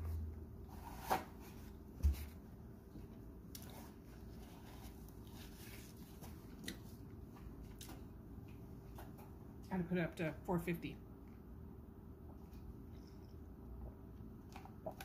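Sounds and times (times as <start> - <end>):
person chewing food: 3.5 - 8.6, 12.4 - 15.0.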